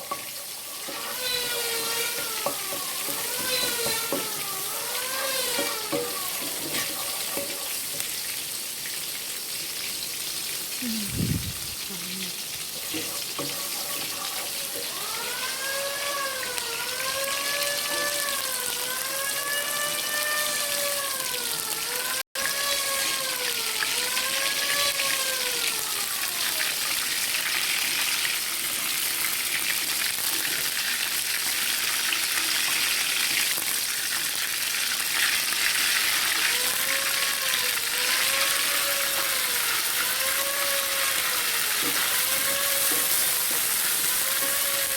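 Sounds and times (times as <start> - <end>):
food sizzling in a pan: 0.0 - 44.9
rising and falling pitched tone: 10.8 - 12.4.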